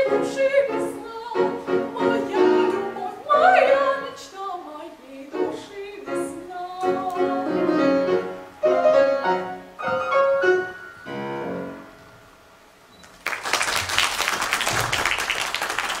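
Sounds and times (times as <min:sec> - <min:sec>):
piano chords: 0:00.0 - 0:12.8
applause: 0:13.0 - 0:16.0.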